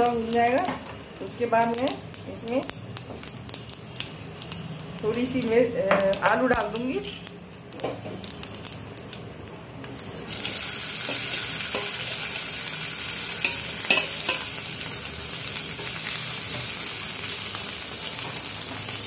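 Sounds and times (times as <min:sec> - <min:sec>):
potatoes sizzling in oil: 0:00.0 - 0:19.0
seeds crackling in hot oil: 0:00.0 - 0:19.0
metal spatula tapping: 0:13.4 - 0:14.5.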